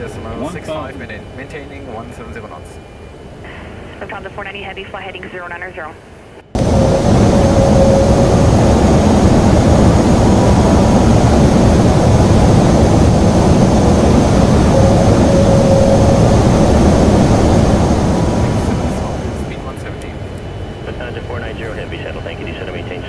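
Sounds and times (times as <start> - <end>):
airflow and jet engine roar: 0.0 - 23.0
thin whining tones: 6.6 - 19.7.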